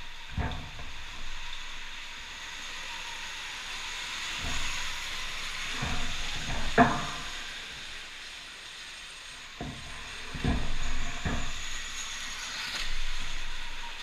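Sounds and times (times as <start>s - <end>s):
dull thumps: 5.7s - 7.4s, 9.6s - 11.6s
electric dirt bikes whining: 9.6s - 14.0s.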